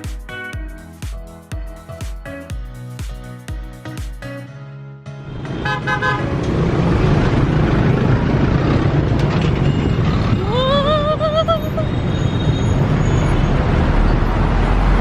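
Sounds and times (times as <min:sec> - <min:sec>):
traffic rumble of engines and tyres: 0:05.2 - 0:15.0
vehicle horns honking: 0:05.5 - 0:06.4.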